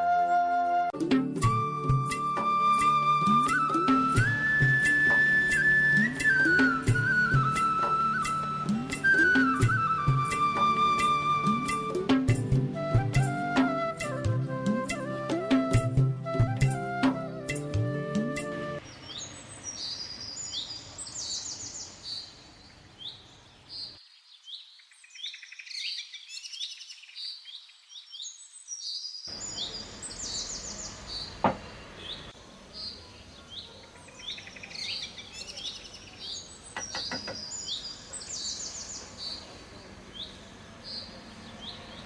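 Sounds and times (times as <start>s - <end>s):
background hiss: 17.2s - 42.0s
small birds chirping: 18.8s - 42.0s.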